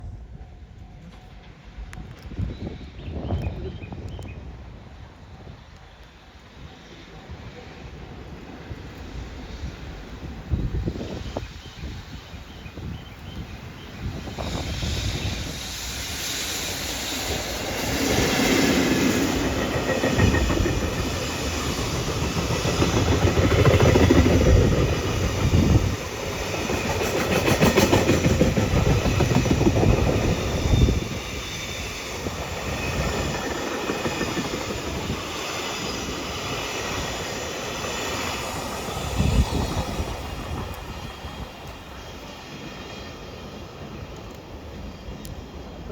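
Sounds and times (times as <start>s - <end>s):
freight train passing: 0.0s - 45.9s
train wheels clacking on rails: 14.1s - 44.4s.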